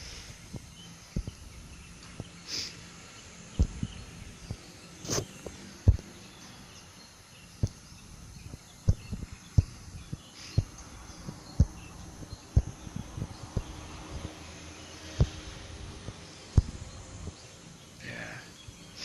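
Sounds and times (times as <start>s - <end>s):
short low thuds: 0.0s - 2.4s, 3.6s - 6.1s, 7.6s - 14.3s, 15.2s - 17.4s
faint birds: 0.0s - 19.0s
insects: 0.0s - 19.0s.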